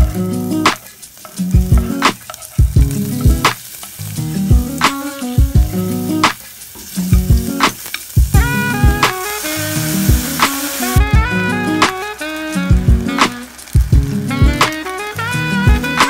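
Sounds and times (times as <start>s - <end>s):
background music with steady beat: 0.0s - 16.0s
food sizzling in hot oil: 0.0s - 16.0s
wooden spatula stirring: 0.8s - 4.1s.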